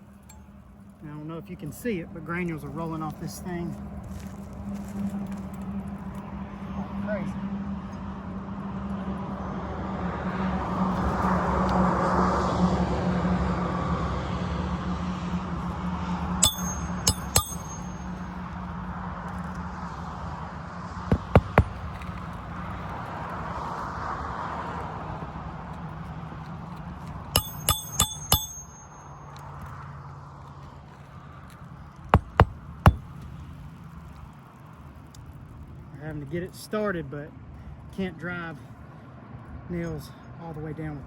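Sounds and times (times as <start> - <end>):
metal tool tapping nails: 16.4 - 18.1, 21.1 - 21.8, 27.4 - 29.1, 32.2 - 33.0.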